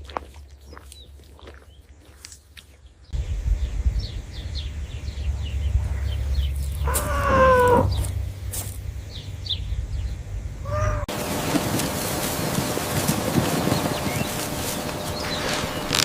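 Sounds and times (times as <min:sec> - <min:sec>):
low rumble: 0:03.1 - 0:11.1
animal cry falling in pitch: 0:06.8 - 0:08.0, 0:10.6 - 0:11.1.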